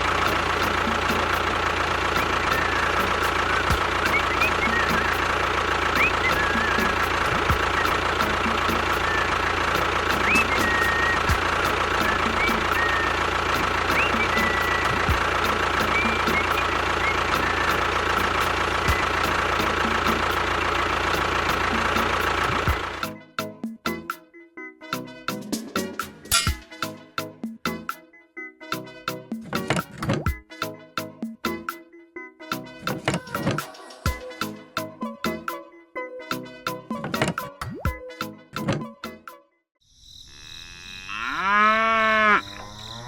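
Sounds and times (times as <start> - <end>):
tractor engine idling: 0.0 - 23.1
small motor whining: 2.2 - 19.4.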